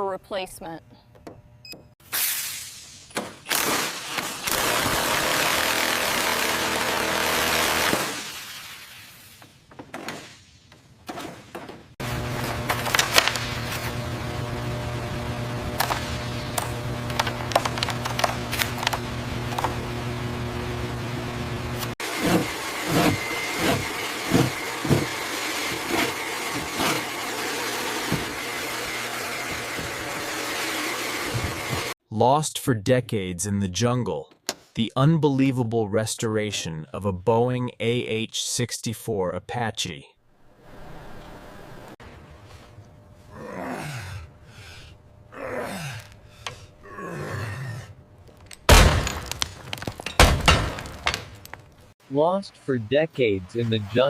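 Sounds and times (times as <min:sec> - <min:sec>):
steady mechanical hum: 0:00.0 - 0:01.9, 0:12.0 - 0:32.0, 0:40.6 - 0:51.9.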